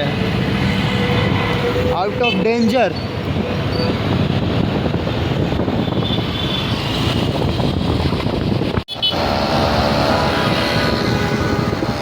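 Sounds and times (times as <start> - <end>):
vehicle road noise: 0.0 - 12.0
wind rushing over microphone: 3.0 - 12.0.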